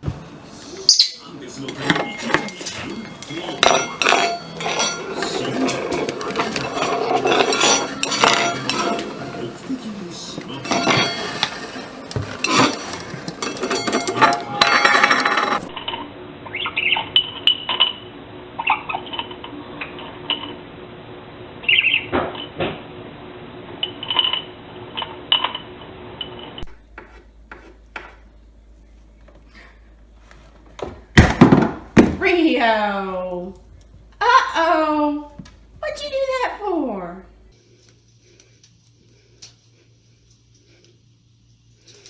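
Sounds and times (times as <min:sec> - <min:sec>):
parrot chirping and whistling: 0:00.8 - 0:01.3
glass and dishes clinking: 0:01.5 - 0:16.0.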